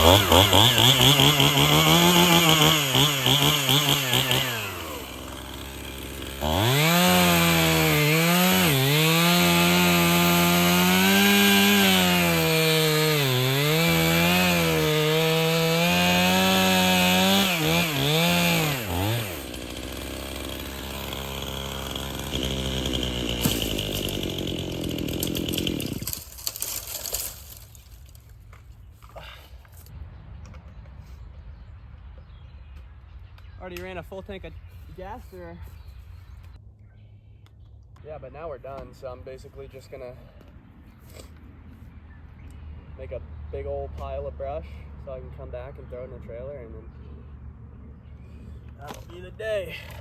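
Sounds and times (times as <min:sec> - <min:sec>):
chainsaw cutting wood: 0:00.0 - 0:28.2.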